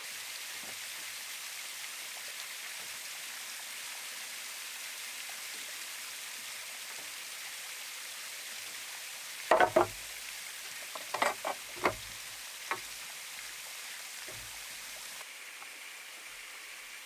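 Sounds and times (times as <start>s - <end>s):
stream-like hiss: 0.0s - 17.0s
sharp knocks: 9.5s - 10.0s, 11.0s - 12.8s, 14.3s - 14.6s.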